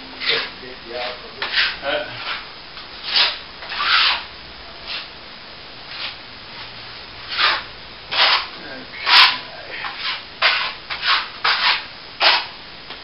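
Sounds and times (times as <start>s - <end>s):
hand tool rubbing plaster: 0.2s - 2.4s, 3.0s - 4.2s, 7.3s - 12.5s.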